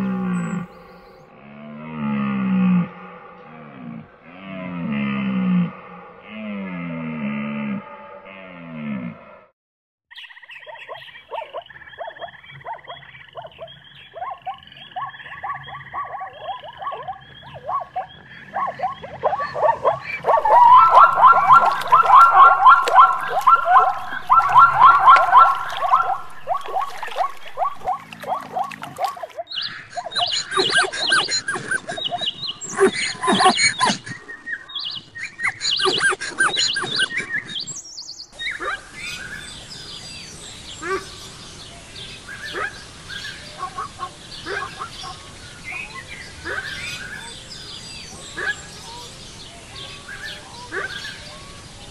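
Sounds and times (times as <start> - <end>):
birds chirping: 0.0 - 1.3, 10.1 - 51.9
animal calls: 10.8 - 37.8, 42.4 - 47.4
zebras barking yelps: 11.3 - 37.8, 42.5 - 42.8, 43.6 - 47.4.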